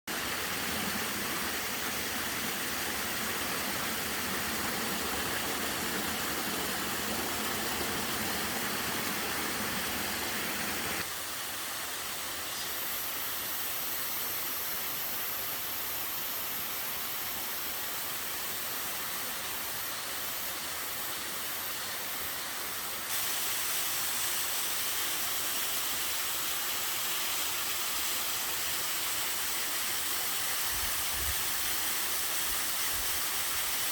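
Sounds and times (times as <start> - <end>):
waterfall rushing: 0.1 - 13.6.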